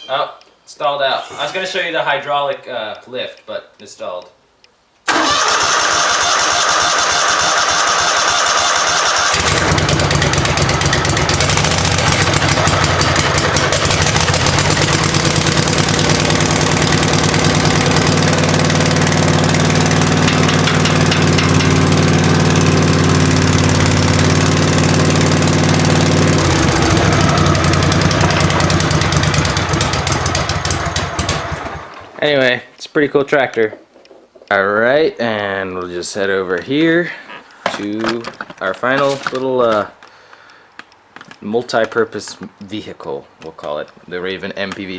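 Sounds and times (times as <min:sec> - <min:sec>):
lawn tractor engine running: 0:05.1 - 0:32.2
starter cranking engine: 0:05.1 - 0:32.2.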